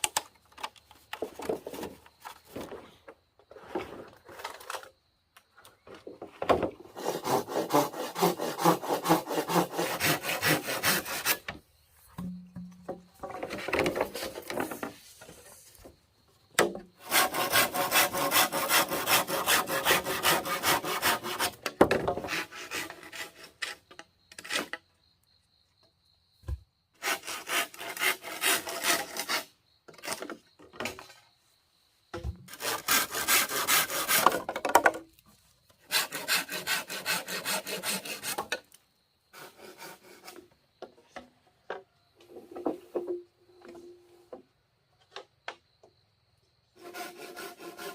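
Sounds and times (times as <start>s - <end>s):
saw cutting through wood: 7.0s - 11.5s, 17.0s - 21.6s, 22.2s - 23.7s, 27.0s - 29.5s, 32.5s - 34.4s, 35.9s - 38.6s, 46.8s - 47.9s.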